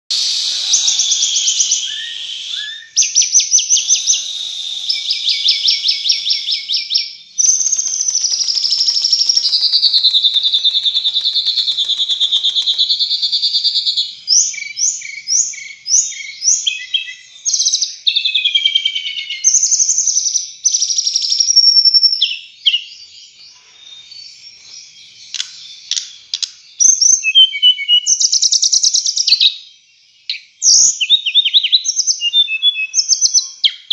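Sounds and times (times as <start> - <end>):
songbird singing trills: 0.1 - 17.7.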